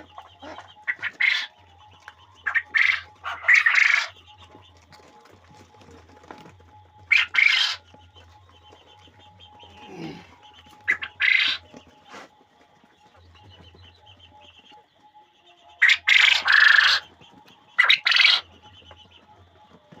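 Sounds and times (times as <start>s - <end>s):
quail calling in scratchy bursts: 0.0s - 1.6s, 2.4s - 4.2s, 7.0s - 7.8s, 10.8s - 12.3s, 15.8s - 17.0s, 17.8s - 18.5s
faint bird chatter: 0.0s - 20.0s.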